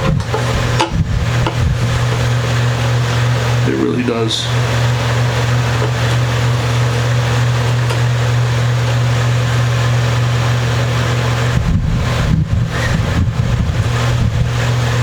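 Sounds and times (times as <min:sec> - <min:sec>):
irregular low rumbling: 0:00.0 - 0:03.6, 0:11.5 - 0:15.0
mechanical hum with hiss: 0:00.0 - 0:15.0.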